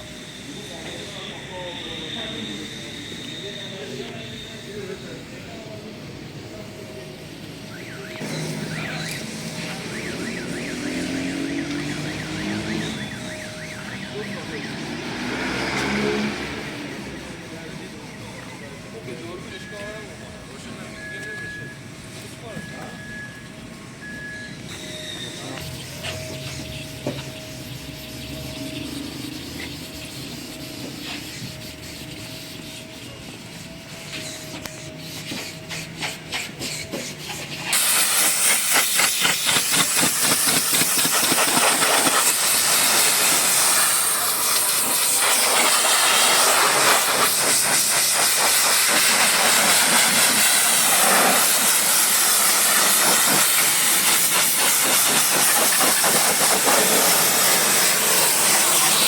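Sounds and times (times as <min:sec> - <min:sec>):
pressure washer spray hiss: 0:33.5 - 0:59.0.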